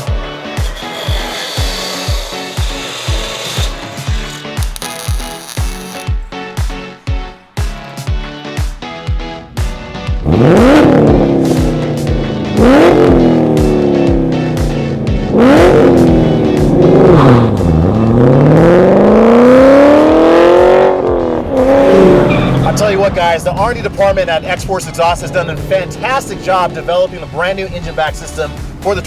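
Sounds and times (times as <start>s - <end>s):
background music with steady beat: 0.0s - 29.0s
car engine accelerating hard: 10.1s - 27.3s.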